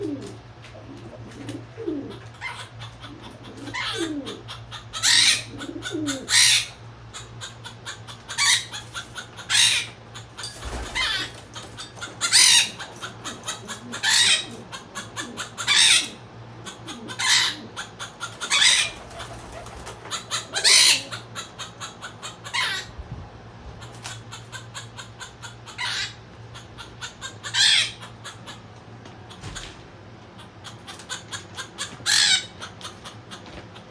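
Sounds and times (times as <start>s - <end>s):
birds calling: 0.0s - 33.9s
steady low hum: 0.0s - 33.9s.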